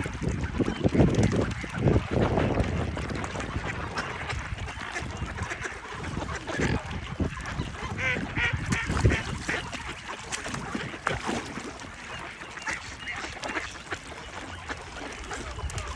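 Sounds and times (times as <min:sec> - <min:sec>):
ducks quacking: 0:00.0 - 0:15.9
water splashing: 0:00.0 - 0:15.9
swans honking: 0:03.5 - 0:15.9.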